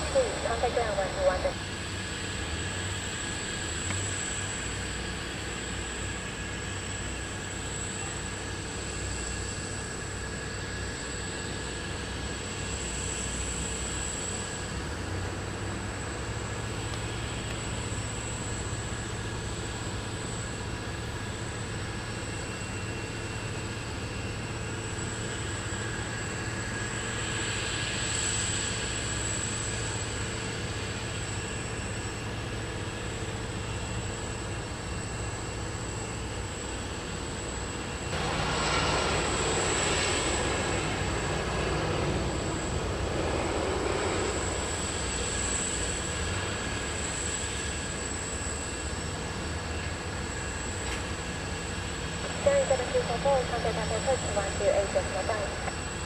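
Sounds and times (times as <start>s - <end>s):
jet engines humming and whining: 0.0s - 56.0s
rush of jet noise: 38.1s - 46.3s.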